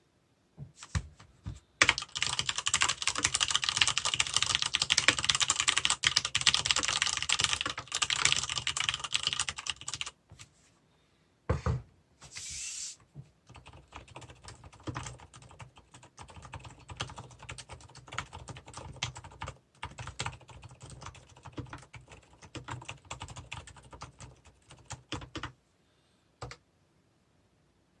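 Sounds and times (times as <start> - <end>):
typing on mechanical keyboard: 1.8 - 10.2, 13.5 - 25.6.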